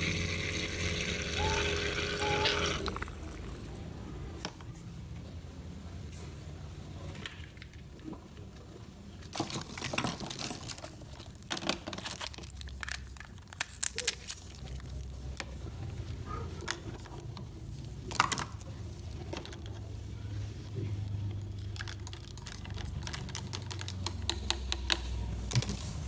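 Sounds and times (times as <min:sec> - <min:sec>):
crinkling of handled objects: 0:07.1 - 0:26.0.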